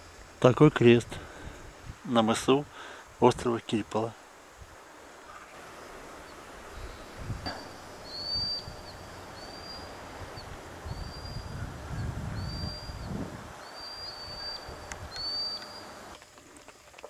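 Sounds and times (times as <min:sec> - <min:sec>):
wind rumbling on microphone: 0:00.0 - 0:03.6, 0:04.5 - 0:16.7
bird high whistle call: 0:06.8 - 0:16.1.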